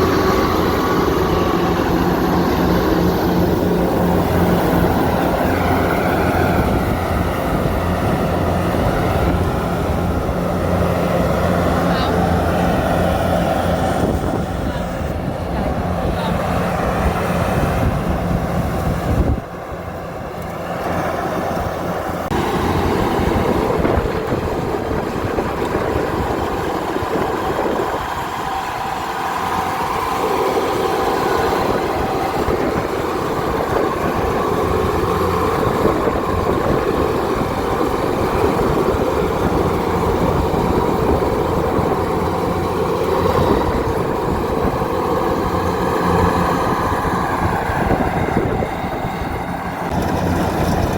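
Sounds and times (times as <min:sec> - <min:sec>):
diesel engine drone: 0:00.0 - 0:50.9
threshing machinery clattering: 0:49.4 - 0:50.9.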